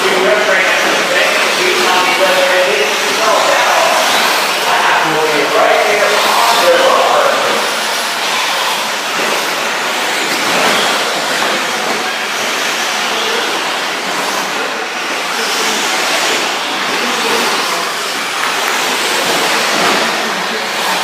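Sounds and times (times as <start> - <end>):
rc truck motors whining: 0.0 - 21.0.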